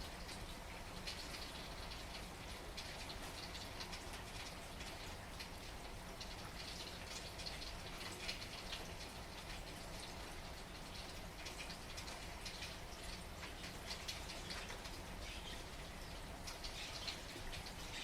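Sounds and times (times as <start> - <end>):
raindrops pattering: 0.0 - 18.0.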